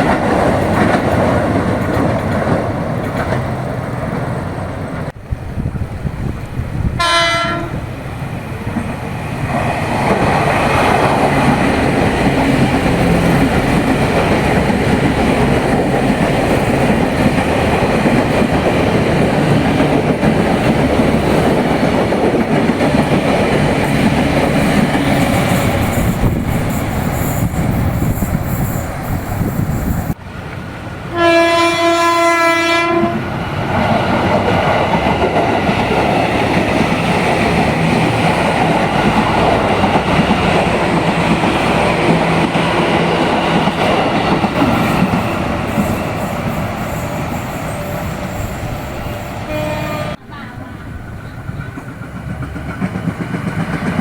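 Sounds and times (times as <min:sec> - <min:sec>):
train wheels rumbling on rails: 0:00.0 - 0:54.0
train horn: 0:07.0 - 0:07.9, 0:31.1 - 0:33.3, 0:44.7 - 0:50.6.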